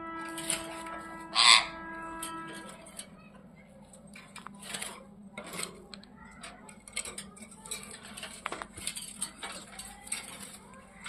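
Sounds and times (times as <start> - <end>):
parrots clicking and tapping: 4.1 - 11.0.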